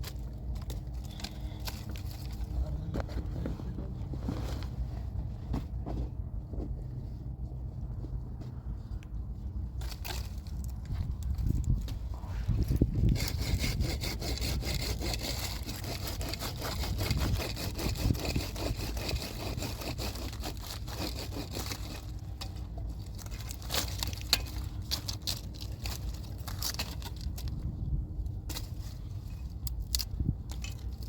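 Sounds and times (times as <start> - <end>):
hand saw rasping through wood: 12.6 - 27.4.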